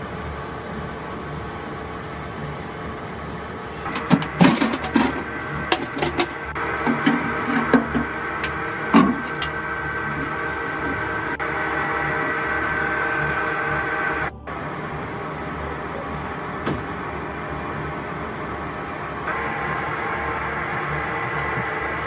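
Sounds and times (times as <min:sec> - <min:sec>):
machinery hum: 0:00.0 - 0:22.0
metal clanks and knocks: 0:03.8 - 0:09.6.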